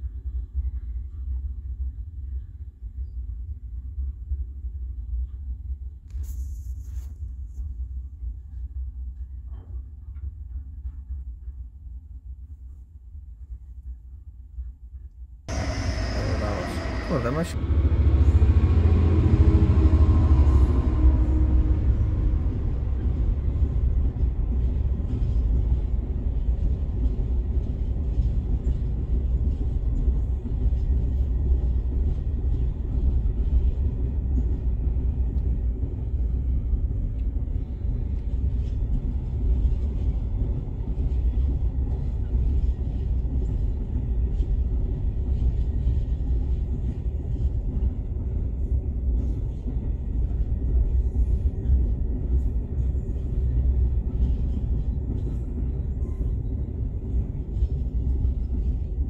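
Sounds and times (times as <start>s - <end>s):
train wheels rumbling on rails: 13.3s - 59.0s.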